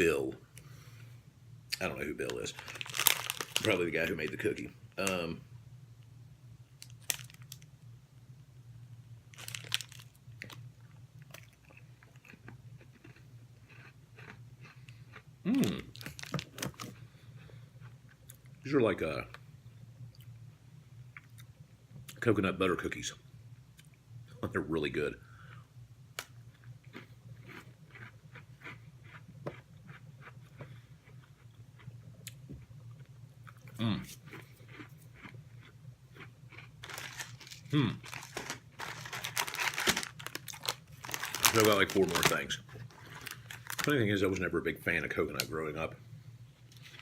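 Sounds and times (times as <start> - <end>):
steady low hum: 0.0 - 47.0
person chewing crunchy cookie: 1.7 - 3.8, 9.4 - 18.5, 26.4 - 43.9
cookie being bitten and chewed: 10.5 - 16.2, 26.2 - 32.4.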